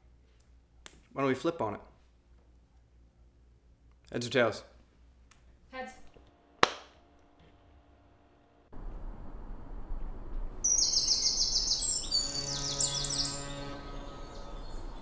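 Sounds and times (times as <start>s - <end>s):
outdoor background noise: 0.0s - 15.0s
low steady hum: 4.9s - 15.0s
bird chirping: 10.6s - 15.0s.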